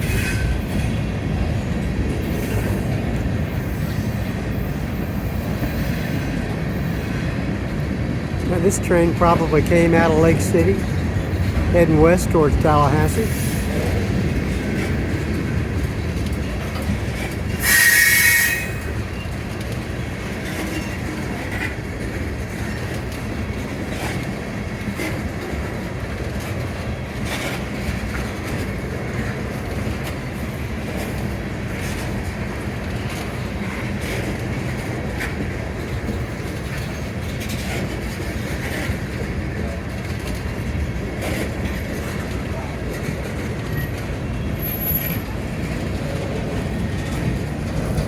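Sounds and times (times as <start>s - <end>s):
freight train wheels rumbling: 0.0s - 48.0s
high wheel squeal: 17.6s - 19.3s.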